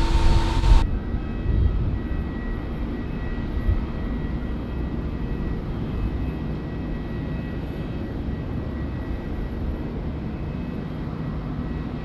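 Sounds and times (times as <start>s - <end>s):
low rumble: 0.0s - 0.8s
loud jet engine noise: 0.0s - 0.9s
faint jet engine whine: 0.0s - 12.0s.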